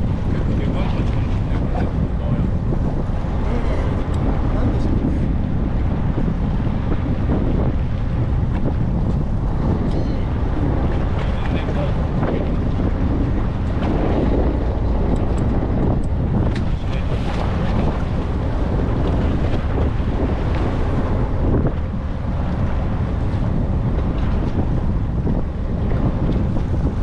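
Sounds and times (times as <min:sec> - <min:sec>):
boat engine running: 0:00.0 - 0:27.0
water rushing: 0:00.0 - 0:27.0
wind on microphone: 0:00.0 - 0:27.0.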